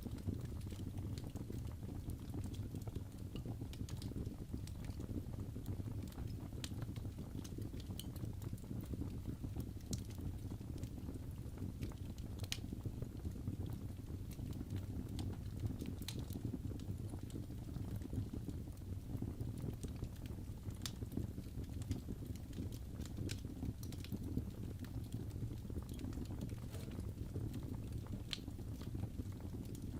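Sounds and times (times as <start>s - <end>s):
fire crackling and popping: 0.0s - 29.9s
wood fire burning: 0.0s - 29.9s.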